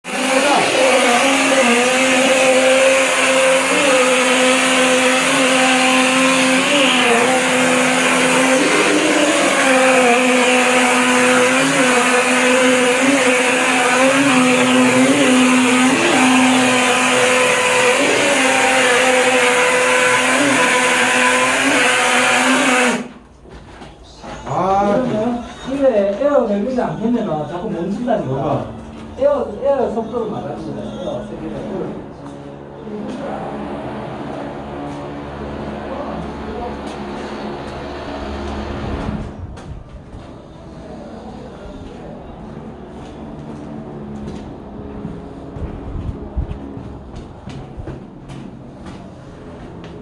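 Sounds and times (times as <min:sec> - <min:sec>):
pump motor hum: 0:00.0 - 0:23.2.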